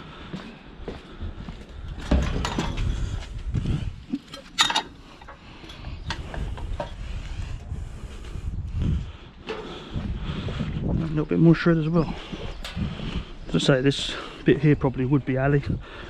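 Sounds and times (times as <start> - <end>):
scrap metal clanking: 4.2 - 5.4.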